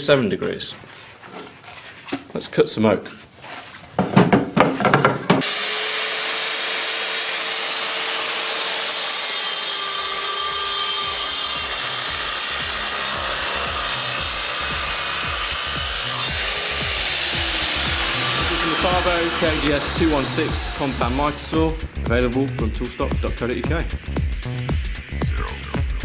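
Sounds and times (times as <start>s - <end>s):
miter saw cutting wood: 5.4s - 21.9s.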